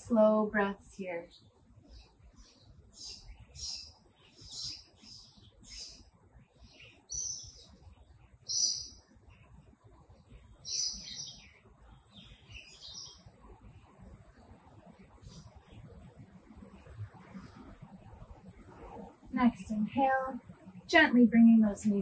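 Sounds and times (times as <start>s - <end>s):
birds chirping and calling: 1.9s - 7.8s, 8.5s - 9.0s, 10.6s - 13.4s.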